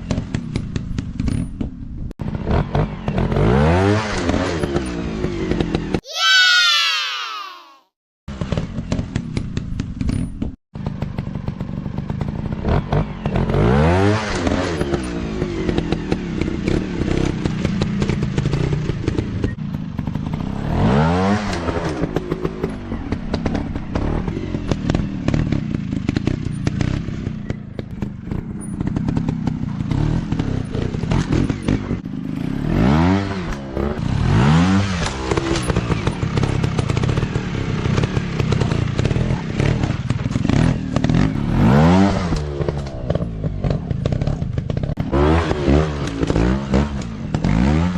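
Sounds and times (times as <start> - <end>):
dirt bike engines revving: 12.3 - 47.9.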